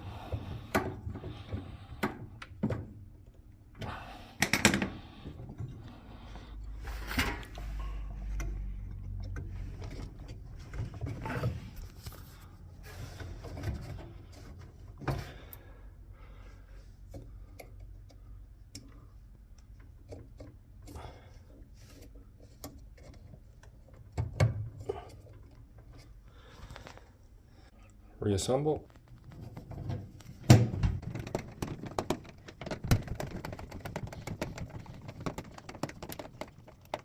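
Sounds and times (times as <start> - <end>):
small clicks rattles and rubbing: 28.8 - 37.0.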